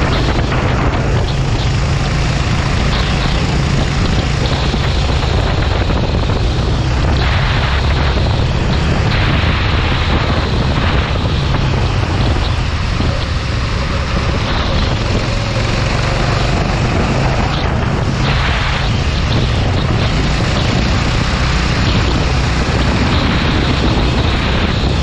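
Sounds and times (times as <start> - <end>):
kart engine running: 0.0 - 25.0
wind rumble on microphone: 0.0 - 25.0.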